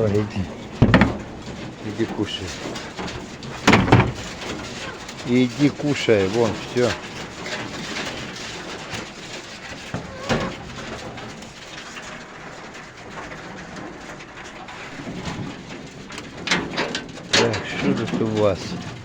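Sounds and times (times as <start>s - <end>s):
pigeons cooing: 0.0s - 11.9s
sharp knocks: 0.0s - 12.2s
animals rustling and chewing: 0.0s - 19.0s.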